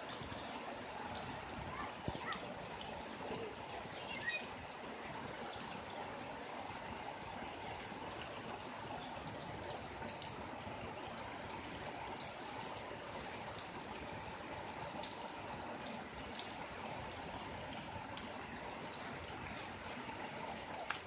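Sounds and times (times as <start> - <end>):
steady rain: 0.0 - 21.0
water dripping: 0.0 - 21.0
water running and trickling: 0.0 - 21.0.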